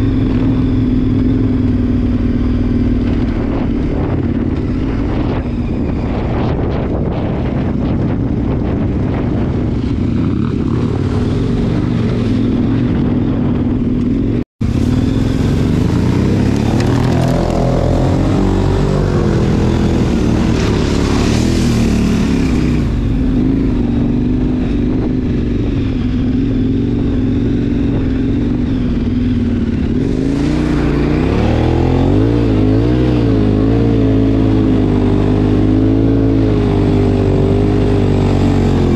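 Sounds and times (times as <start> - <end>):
motorcycle engine: 0.0 - 38.9
wind noise on camera: 0.0 - 38.9
water splashing: 14.6 - 23.4.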